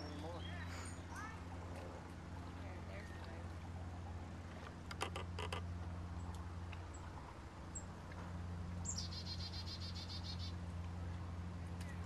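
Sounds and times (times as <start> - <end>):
steady low hum: 0.0 - 12.0
small bird trilling: 8.8 - 10.5.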